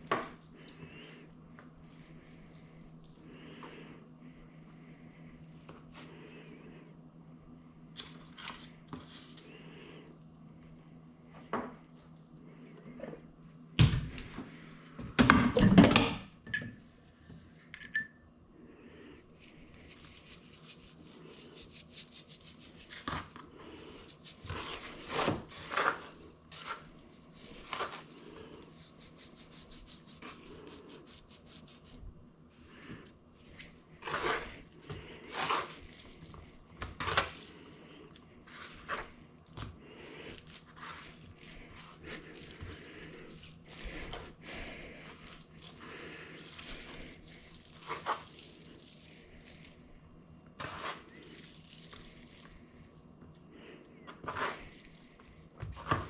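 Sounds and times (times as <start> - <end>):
low steady hum: 0.0 - 56.0
utensils and dishes clinking: 17.7 - 18.2.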